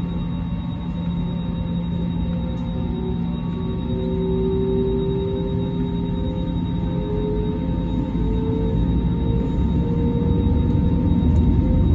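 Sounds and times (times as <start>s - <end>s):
aircraft engines droning: 0.0s - 11.9s.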